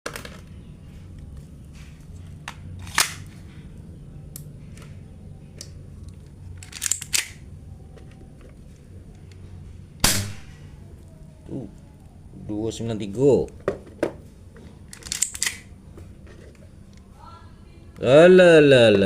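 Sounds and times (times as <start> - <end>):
low steady hum: 0.1 - 19.0
toy pistol snaps: 6.6 - 7.4, 14.9 - 15.7.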